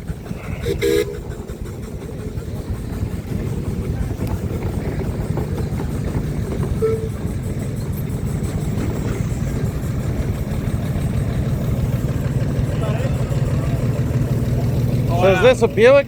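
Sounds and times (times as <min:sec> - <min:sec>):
engine idling: 0:00.0 - 0:16.0
short tone: 0:06.8 - 0:07.3.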